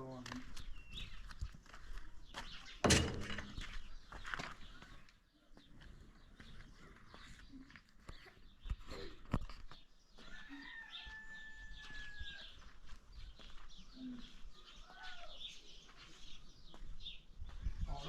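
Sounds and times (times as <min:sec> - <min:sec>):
birds chirping: 0:00.0 - 0:18.0
sharp knocks: 0:02.8 - 0:03.7.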